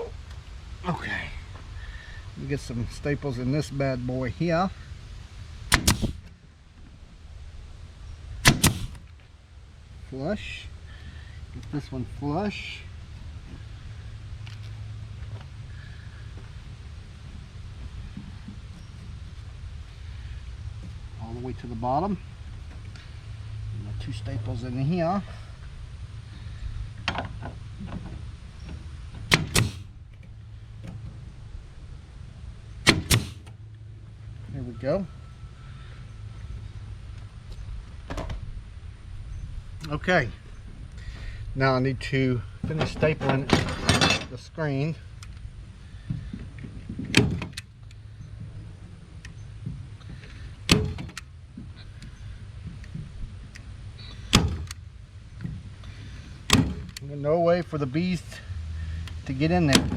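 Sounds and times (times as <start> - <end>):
staple gun snaps: 5.7 - 6.2, 8.5 - 9.0, 29.3 - 29.8, 32.9 - 33.4.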